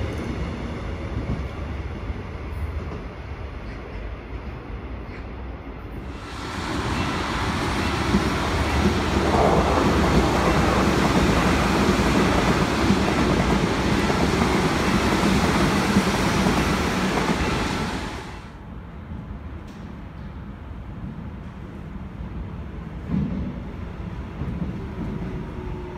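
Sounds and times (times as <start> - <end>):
train wheels rushing on rails: 5.9 - 18.6.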